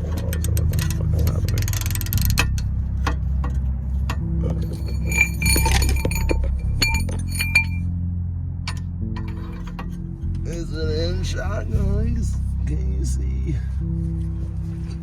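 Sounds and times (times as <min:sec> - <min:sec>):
metal tools clinking: 0:00.0 - 0:07.8, 0:08.7 - 0:10.0
background music with bass: 0:00.0 - 0:15.0.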